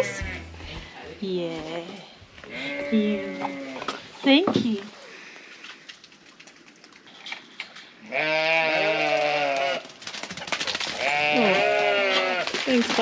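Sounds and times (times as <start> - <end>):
farm animal bleating: 0.0 - 1.1, 2.5 - 3.9, 8.0 - 9.8, 11.0 - 12.6.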